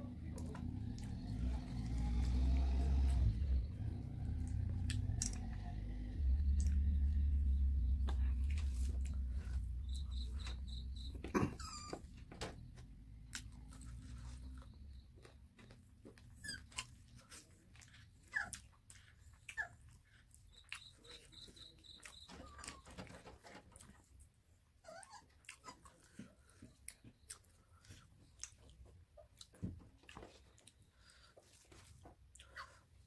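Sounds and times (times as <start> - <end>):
high evenly spaced chirps: 3.4 - 11.9, 20.5 - 22.5
chewing: 4.2 - 6.9, 13.2 - 22.8, 24.9 - 33.0
short falling squeaks: 9.6 - 12.7.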